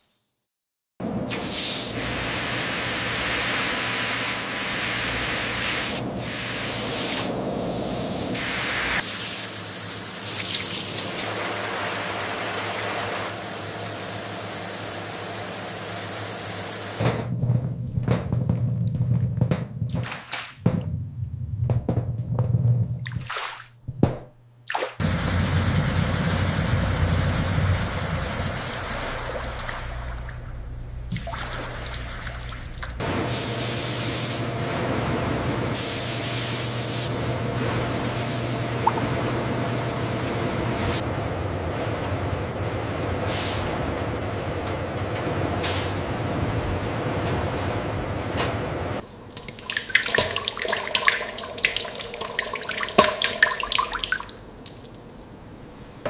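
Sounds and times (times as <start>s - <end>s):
low machine hum: 25.0s - 33.7s, 37.1s - 56.0s
rushing splashing water: 49.3s - 55.2s.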